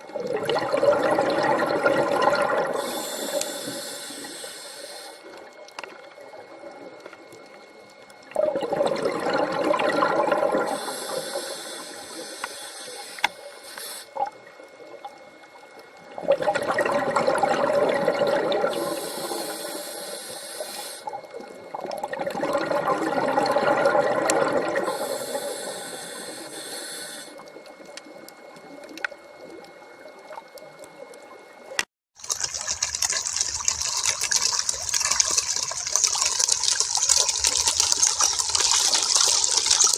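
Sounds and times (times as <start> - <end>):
hissing stream of water: 0.3 - 5.5, 8.4 - 14.3, 16.2 - 21.3, 32.2 - 39.9
water rushing and gushing: 32.2 - 39.9.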